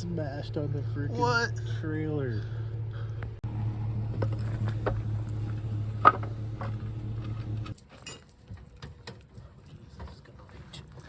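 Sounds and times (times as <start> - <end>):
pickup truck engine idling: 0.0 - 7.8.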